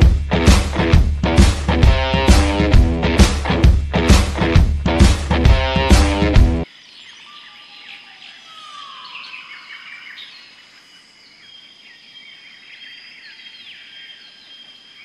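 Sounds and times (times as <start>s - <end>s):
rock music: 0.0s - 6.6s.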